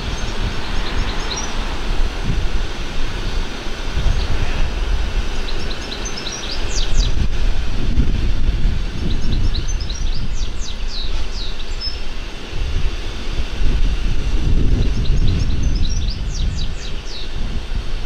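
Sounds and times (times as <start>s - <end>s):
songbird singing: 0.0s - 2.0s, 3.1s - 7.4s, 8.8s - 12.3s, 14.6s - 17.5s
steady low rumble: 0.0s - 18.0s.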